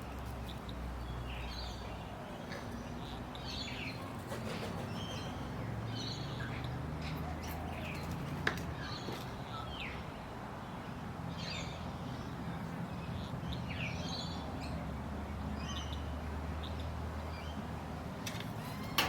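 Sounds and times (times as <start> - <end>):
birds chirping: 0.0 - 14.8.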